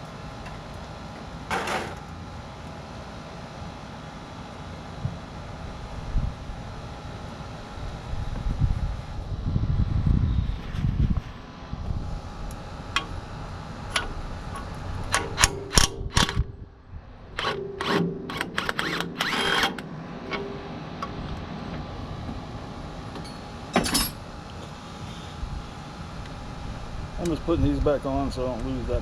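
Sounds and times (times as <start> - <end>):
steady low hum: 0.0 - 29.0
metal tools clinking and knocking: 23.2 - 24.2.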